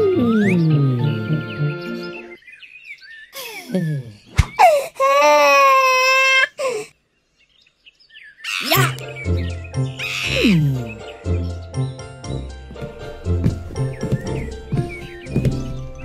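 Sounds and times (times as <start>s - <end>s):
children's cartoon music: 0.0s - 2.4s, 8.5s - 16.0s
cartoon baby crying: 4.6s - 6.9s, 8.5s - 9.0s, 10.0s - 10.9s.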